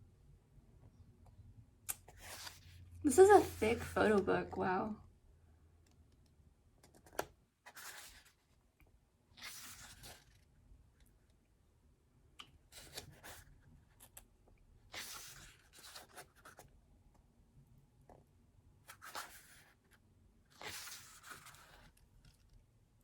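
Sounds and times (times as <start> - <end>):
book pages turning: 1.9 - 4.3, 6.9 - 8.5, 9.3 - 10.5, 12.6 - 16.7, 18.9 - 22.6.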